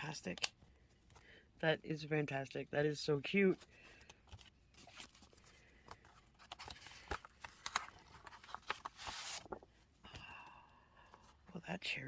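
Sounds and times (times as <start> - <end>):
packaging rustling: 3.6 - 9.8.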